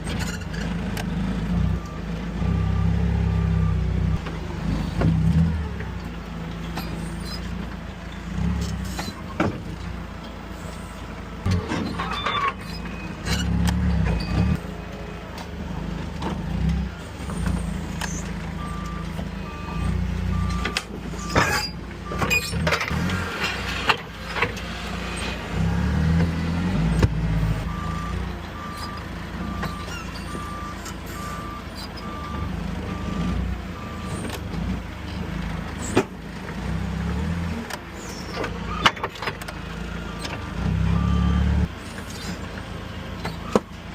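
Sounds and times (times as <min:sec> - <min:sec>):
forklift engine revving: 0:00.0 - 0:43.9
reversing alarm beeping: 0:18.6 - 0:22.6, 0:27.6 - 0:34.2, 0:40.9 - 0:41.7.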